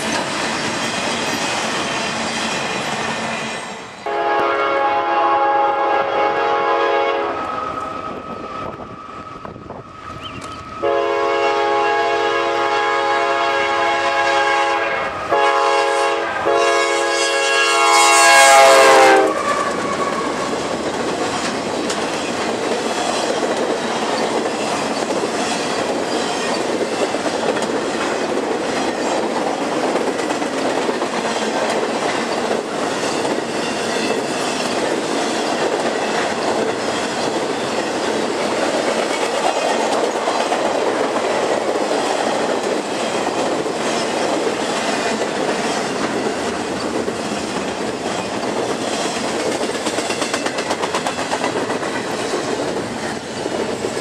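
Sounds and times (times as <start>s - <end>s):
freight train cars rumbling past: 0.0s - 54.0s
locomotive air horn blasts: 4.0s - 7.5s, 10.8s - 20.4s.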